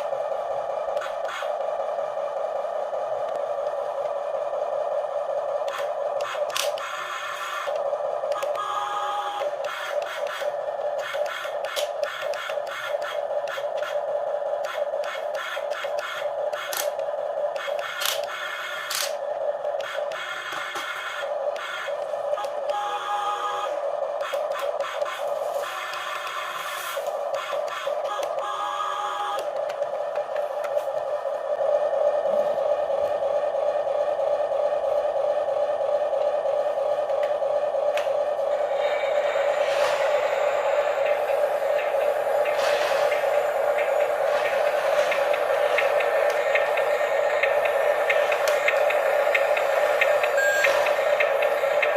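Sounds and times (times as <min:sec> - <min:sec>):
toy gear motors whining: 0:05.6 - 0:29.8, 0:38.6 - 0:51.9
toy electric motor whining: 0:14.6 - 0:19.2.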